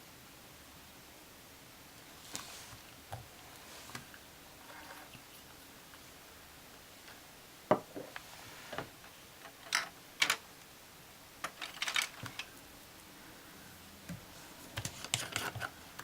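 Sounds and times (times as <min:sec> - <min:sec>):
small objects clicking on a tabletop: 0:09.7 - 0:10.4.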